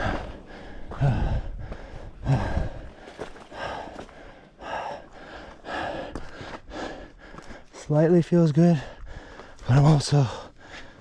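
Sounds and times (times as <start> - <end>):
wind buffeting microphone: 0.0 - 3.1
person breathing hard: 0.0 - 7.8, 8.7 - 11.0.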